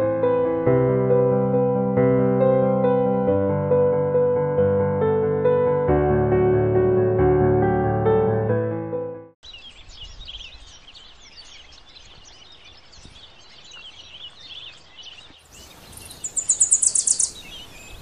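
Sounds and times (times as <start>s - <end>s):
small birds chirping: 9.4s - 18.0s
rapid high-pitched bird trill: 15.5s - 18.0s.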